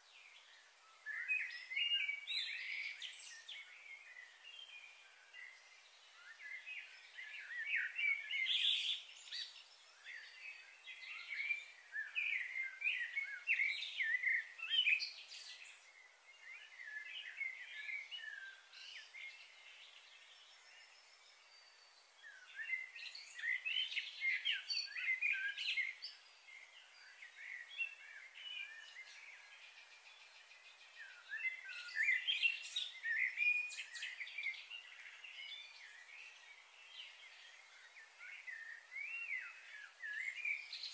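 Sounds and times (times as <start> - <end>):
small birds chirping and twittering: 0.0 - 40.9.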